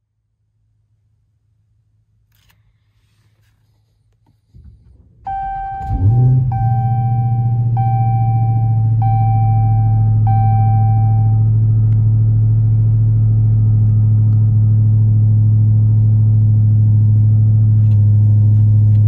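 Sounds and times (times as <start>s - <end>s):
car engine starting and idling: 4.4s - 19.0s
warning chime dinging: 5.3s - 11.5s.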